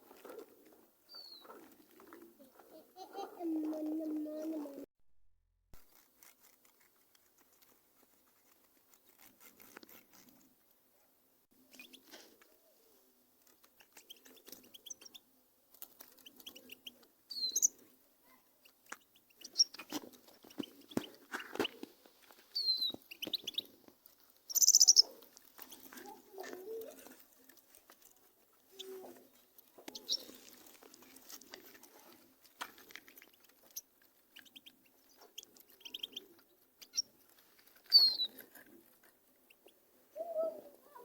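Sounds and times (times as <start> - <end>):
canaries chirping: 1.1 - 1.8, 14.0 - 15.3, 16.0 - 17.9, 18.6 - 21.8, 22.5 - 26.1, 28.6 - 31.3, 33.3 - 39.8.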